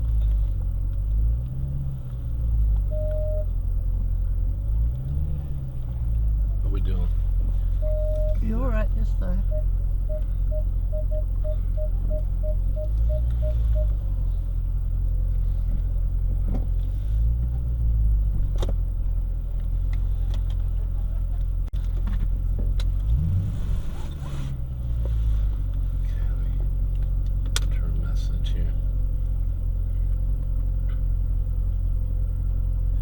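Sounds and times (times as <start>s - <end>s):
car engine rumbling: 0.0s - 33.0s
electronic beeps: 2.9s - 3.5s, 7.8s - 14.0s.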